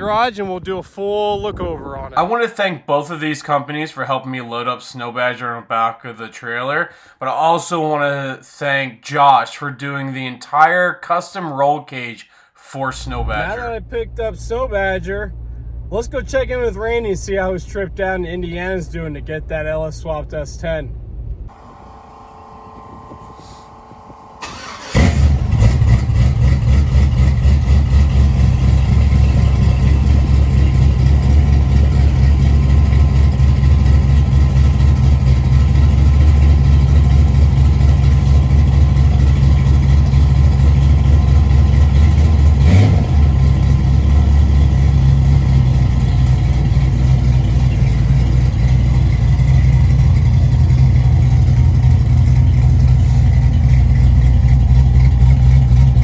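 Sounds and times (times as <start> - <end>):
car engine starting and running: 12.8 - 56.0.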